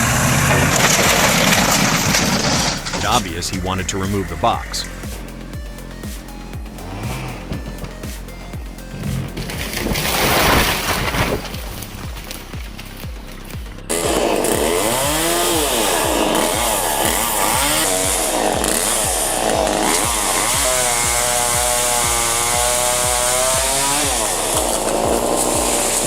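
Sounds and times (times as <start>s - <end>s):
background music with steady beat: 0.0s - 26.0s
chainsaw revving: 0.0s - 26.0s.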